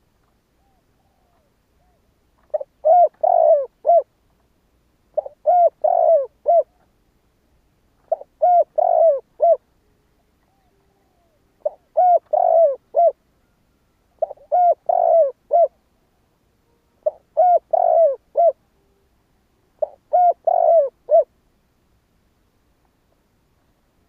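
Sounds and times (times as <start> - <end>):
dove cooing: 0.6 - 4.1, 5.1 - 6.9, 8.0 - 13.2, 14.2 - 15.8, 17.0 - 18.7, 19.8 - 21.3.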